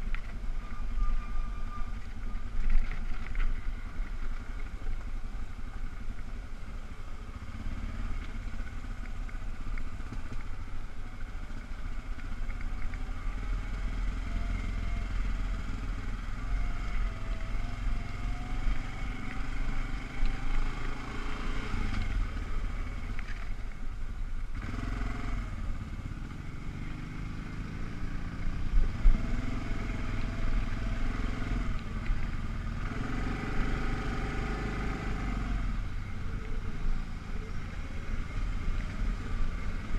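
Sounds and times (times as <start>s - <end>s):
engine revving: 24.6s - 35.9s.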